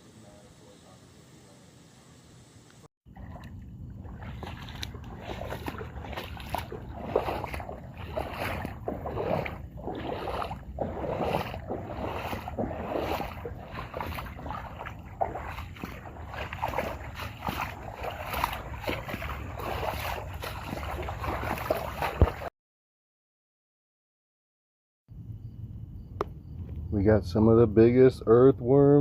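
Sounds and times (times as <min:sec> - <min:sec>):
floodwater sloshing and splashing: 0:03.1 - 0:22.5
wind buffeting microphone: 0:03.2 - 0:22.5.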